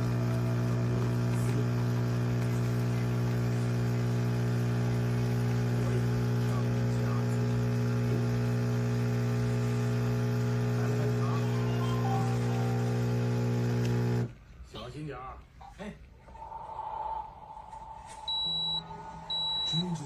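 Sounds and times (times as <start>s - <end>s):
espresso machine pump humming: 0.0s - 14.4s.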